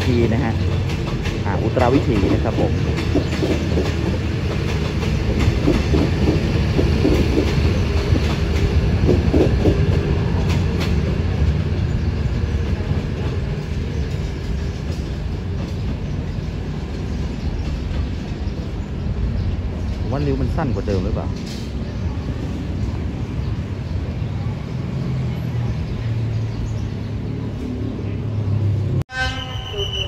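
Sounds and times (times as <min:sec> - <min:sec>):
train rumbling along track: 0:00.0 - 0:30.0
wheels clicking over rail joints: 0:00.5 - 0:11.8
wheel squeals: 0:29.2 - 0:30.0.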